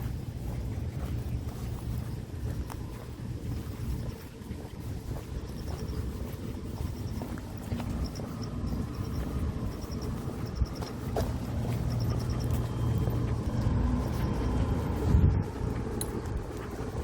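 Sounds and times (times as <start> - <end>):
vehicle engine humming: 0.0 - 17.0
insect chirping: 5.4 - 13.3.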